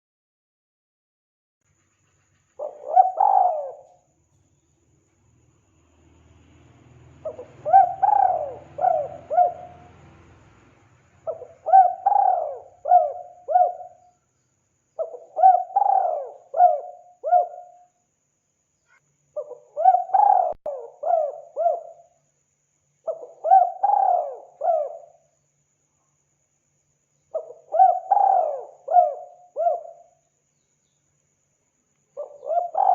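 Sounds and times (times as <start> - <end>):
dove cooing: 2.6 - 4.0, 7.2 - 10.1, 11.2 - 14.1, 15.0 - 17.9, 19.4 - 22.0, 23.1 - 25.2, 27.4 - 30.1, 32.2 - 32.9.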